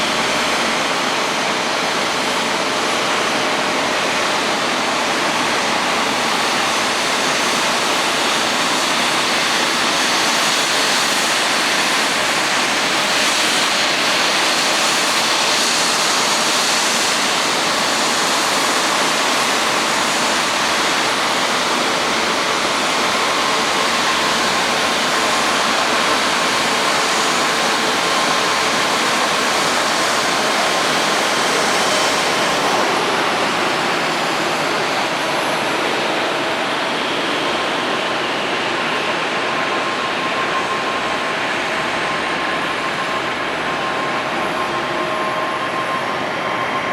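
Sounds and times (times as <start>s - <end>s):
jet engines idling: 0.0s - 46.9s.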